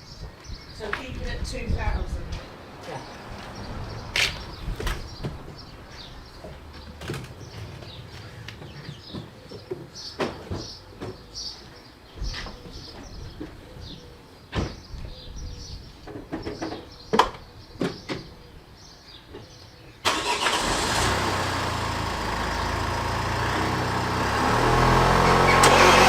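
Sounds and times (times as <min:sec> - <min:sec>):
diesel engine cranking and running: 0:20.0 - 0:26.0.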